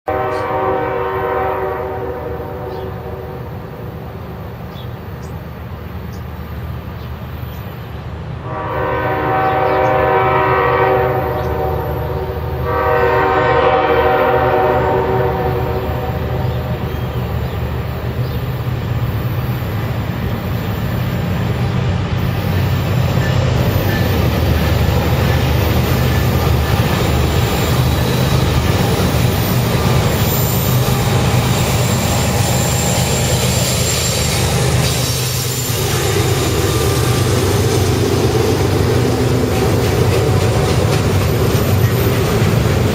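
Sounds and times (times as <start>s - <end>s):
locomotive air horn blasts: 0.1s - 3.7s, 8.4s - 16.8s
diesel locomotive rumble: 0.1s - 42.9s
train wheel noise: 9.2s - 42.9s.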